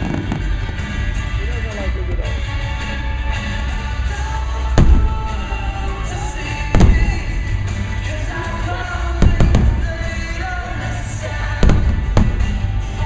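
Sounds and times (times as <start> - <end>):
fireworks booming: 0.0 - 1.3, 4.6 - 13.0
loud music with singing: 0.0 - 13.0.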